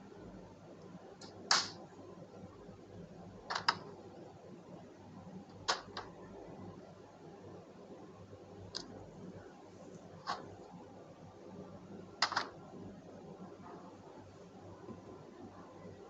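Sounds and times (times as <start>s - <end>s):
faint steady background noise: 0.0s - 16.0s
sharp clicks or knocks: 1.2s - 1.8s, 3.5s - 3.8s, 12.2s - 12.6s.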